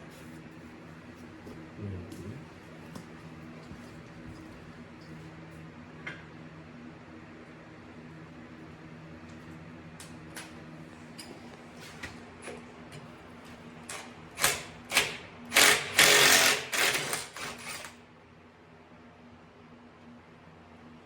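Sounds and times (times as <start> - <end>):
pneumatic tool bursts: 14.4 - 18.0.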